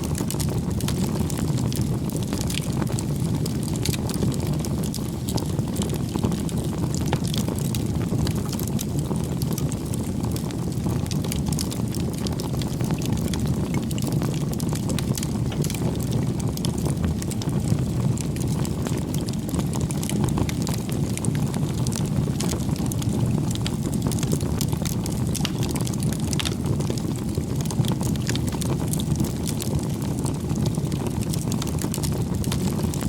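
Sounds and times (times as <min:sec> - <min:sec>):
bonfire flames rushing: 0:00.0 - 0:33.0
burning wood crackling: 0:00.0 - 0:33.0.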